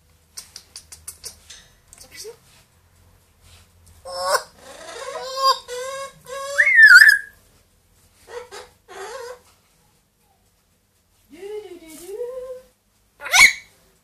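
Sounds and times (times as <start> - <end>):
parrot raspy sounds: 4.0 - 7.4, 13.2 - 13.8
parrot whistling calls: 4.1 - 7.4, 13.2 - 13.7.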